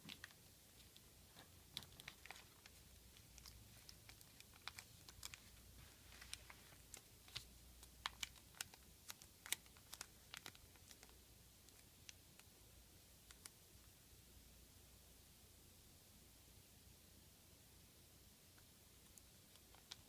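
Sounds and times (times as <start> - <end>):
paper being folded: 1.8 - 11.1.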